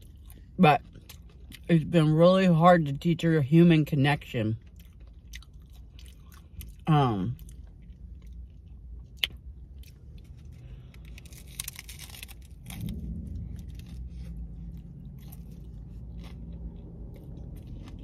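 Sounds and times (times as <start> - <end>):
person crunching taco shell: 0.0 - 1.7, 4.6 - 18.0
quiet chewing: 4.6 - 6.8, 7.4 - 18.0.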